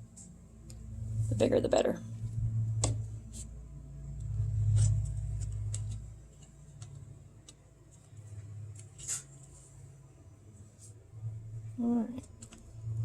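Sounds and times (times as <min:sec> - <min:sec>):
faint clicks and taps: 0:05.4 - 0:08.9.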